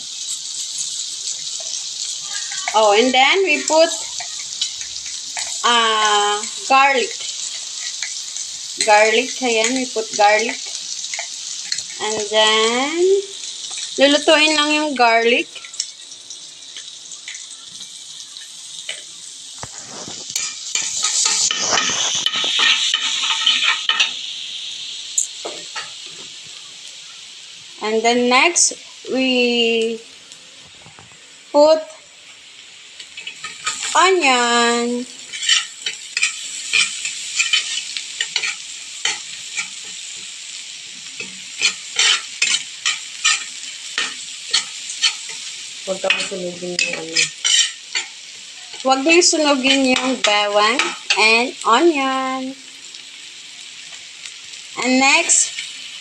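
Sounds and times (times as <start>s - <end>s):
garlic sizzling in a pan: 0.0s - 56.0s
utensil scraping a pan: 19.6s - 24.2s, 35.2s - 40.0s, 41.2s - 48.8s, 49.5s - 51.3s
utensil scraping and knocking a pan: 19.6s - 24.2s.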